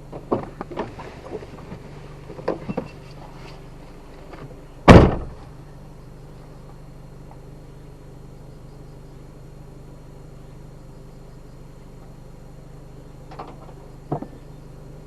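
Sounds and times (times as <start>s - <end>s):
car engine idling: 0.0s - 15.0s
car door slamming: 4.8s - 5.5s.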